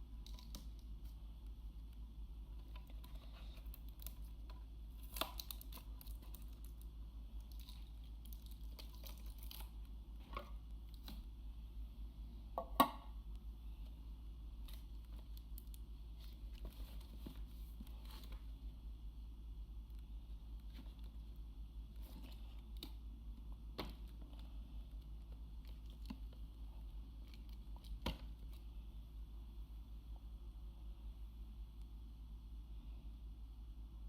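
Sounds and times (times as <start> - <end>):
steady low hum: 0.0 - 34.0
packaging crinkling and tearing: 2.9 - 9.8.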